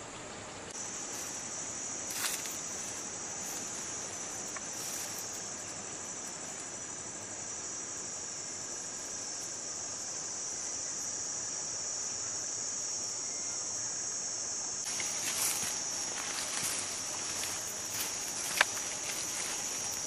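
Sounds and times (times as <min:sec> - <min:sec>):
insects droning: 0:00.0 - 0:20.0
crackling rustling noises: 0:01.0 - 0:05.8, 0:14.8 - 0:20.0.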